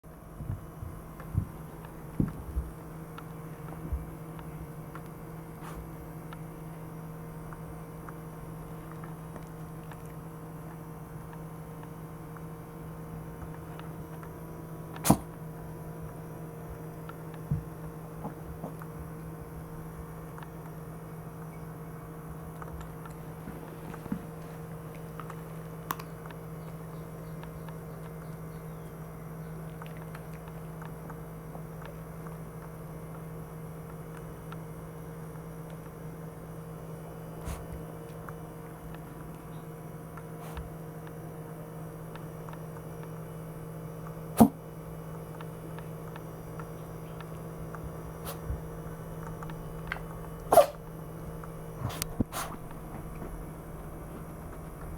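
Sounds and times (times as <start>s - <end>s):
dog sneezing: 15.0s - 15.3s, 44.4s - 44.6s, 50.5s - 50.8s, 51.9s - 52.6s.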